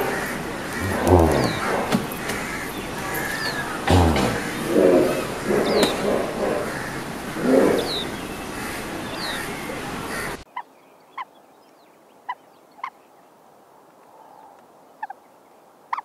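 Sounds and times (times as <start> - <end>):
outdoor hiss: 0.0 - 10.4
short bird calls: 0.0 - 10.4
high bird chirps: 7.8 - 10.4.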